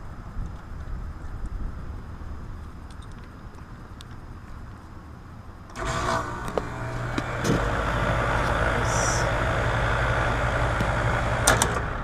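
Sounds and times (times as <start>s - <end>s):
air conditioner unit humming: 5.8s - 12.0s.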